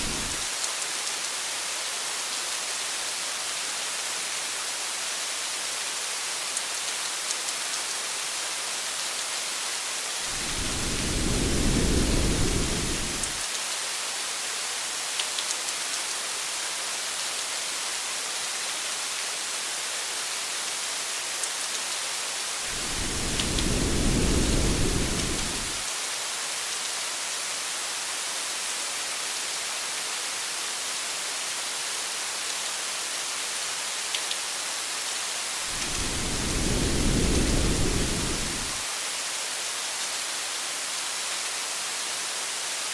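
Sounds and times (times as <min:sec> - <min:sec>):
low thunder rumbling: 0:00.0 - 0:00.4, 0:10.3 - 0:13.4, 0:22.7 - 0:25.8, 0:35.7 - 0:38.8
faint raindrop ticks: 0:00.0 - 0:01.4, 0:06.5 - 0:08.1, 0:15.1 - 0:16.2, 0:21.4 - 0:21.9, 0:22.8 - 0:25.8, 0:34.1 - 0:34.5
rain falling on a car: 0:22.7 - 0:25.8.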